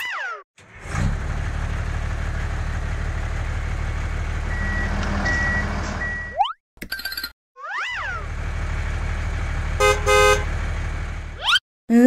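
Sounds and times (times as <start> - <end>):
tractor engine running: 0.6 - 6.4, 8.1 - 11.4
reversing beeps: 4.5 - 6.4.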